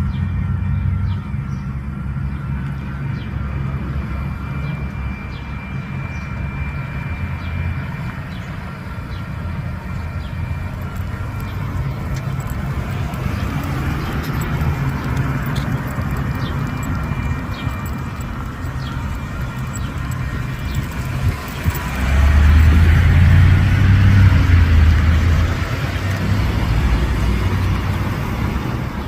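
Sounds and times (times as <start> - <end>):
railroad crossing bell ringing: 0.0 - 29.0
low rumble: 9.3 - 28.1
vehicle passing by: 9.7 - 29.0.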